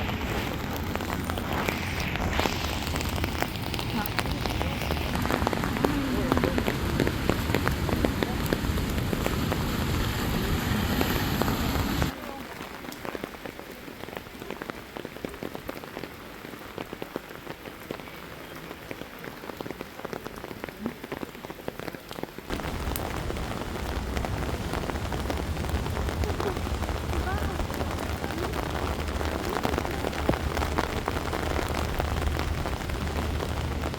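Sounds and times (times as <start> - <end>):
rain drops ticking: 0.0 - 33.9
low rumble: 22.5 - 33.9.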